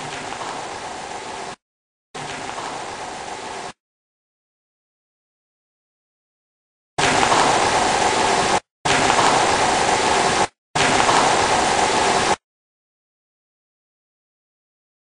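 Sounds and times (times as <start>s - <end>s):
static hiss bursts: 0.0s - 1.6s, 2.2s - 3.8s, 7.0s - 12.4s.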